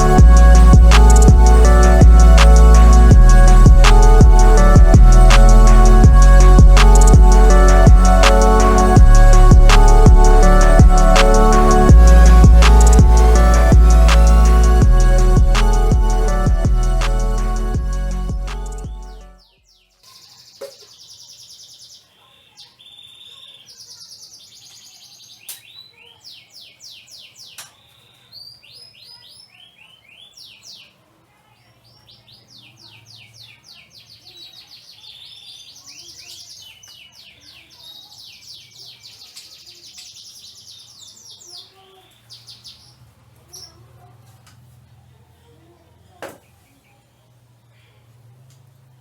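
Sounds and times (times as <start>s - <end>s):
canaries chirping and trilling: 0.0s - 31.0s, 31.8s - 44.4s
sharp clicks: 0.9s - 1.4s, 6.8s - 7.2s, 12.6s - 13.0s.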